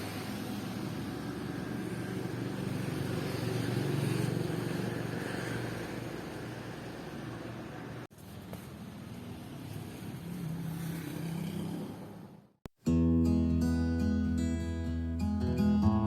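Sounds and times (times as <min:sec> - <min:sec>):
road traffic: 0:00.0 - 0:12.7.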